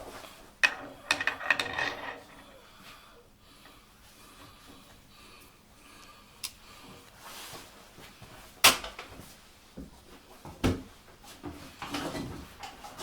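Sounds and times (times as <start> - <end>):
metal parts clunking: 0.6 - 2.4.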